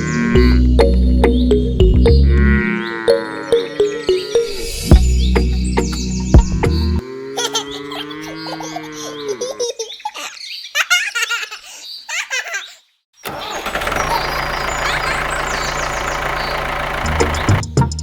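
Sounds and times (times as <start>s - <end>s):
music: 0.0s - 7.0s, 17.5s - 18.0s
chirpy laugh-like sounds: 7.2s - 16.7s
small motor humming: 13.3s - 17.6s.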